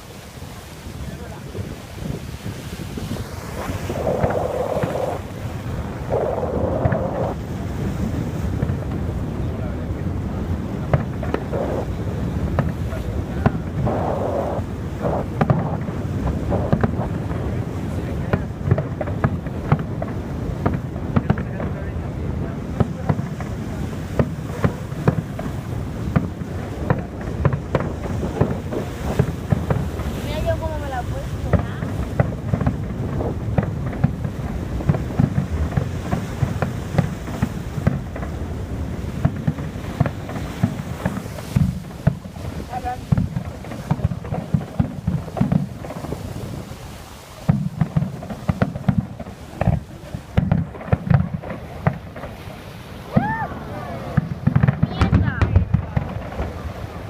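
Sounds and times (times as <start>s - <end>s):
fireworks bangs: 0.0s - 57.0s
steady low rumble: 2.8s - 46.8s.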